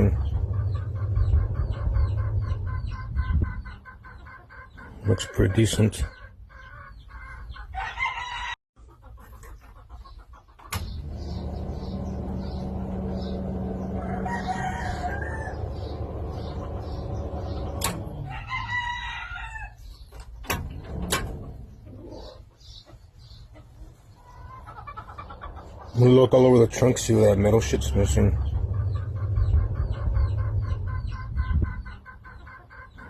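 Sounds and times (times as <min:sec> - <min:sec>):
steady low rumble: 0:00.0 - 0:03.9, 0:10.9 - 0:18.4, 0:24.7 - 0:32.4
rooster crowing: 0:07.8 - 0:08.6, 0:13.6 - 0:16.2, 0:18.2 - 0:19.8.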